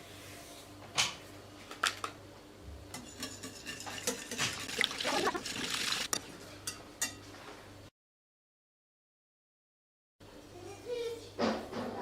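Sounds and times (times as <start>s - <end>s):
dishes and cutlery clinking: 2.9s - 4.9s, 6.1s - 7.4s.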